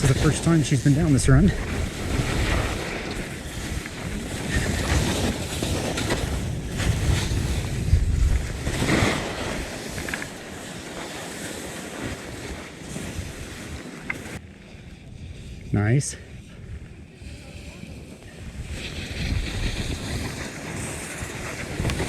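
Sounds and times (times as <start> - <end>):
skis scraping on snow: 0.0 - 22.0
wind buffeting camera microphone: 0.0 - 22.0.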